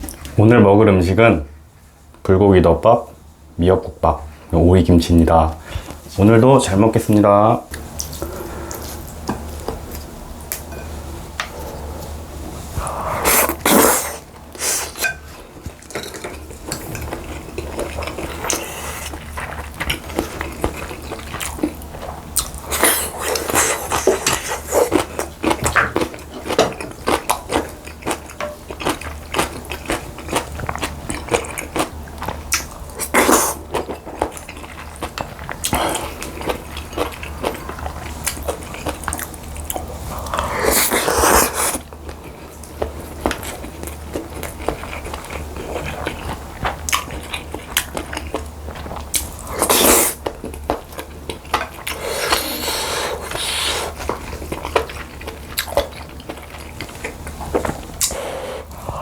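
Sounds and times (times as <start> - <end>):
utensils clinking against bowls: 14.9 - 18.7.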